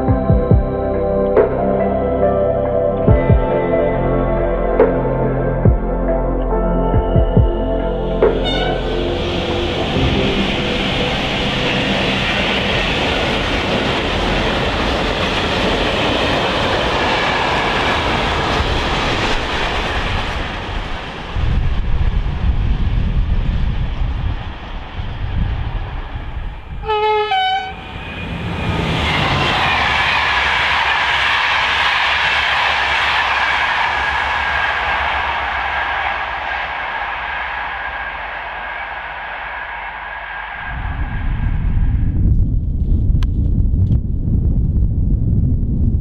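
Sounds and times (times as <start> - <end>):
freight train rumbling past: 0.0 - 43.7
loud wheel and rail noise: 7.6 - 44.1
train horn two notes: 8.2 - 10.8, 26.8 - 27.8.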